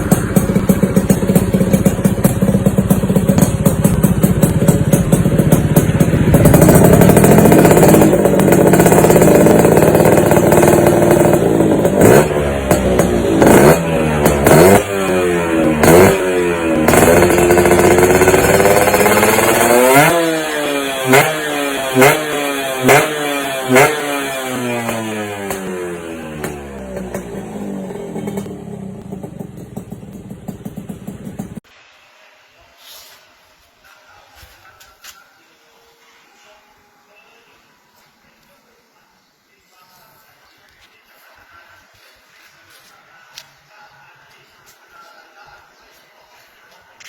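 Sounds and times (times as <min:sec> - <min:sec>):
two-stroke engine revving: 0:00.0 - 0:31.6.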